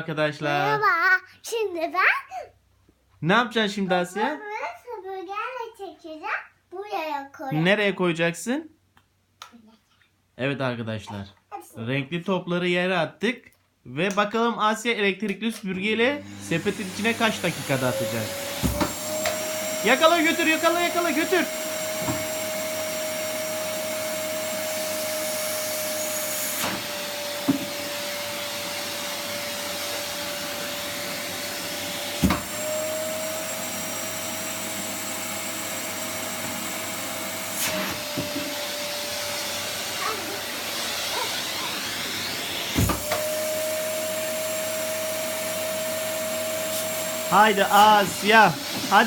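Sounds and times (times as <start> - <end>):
vacuum cleaner whining: 15.9 - 49.0.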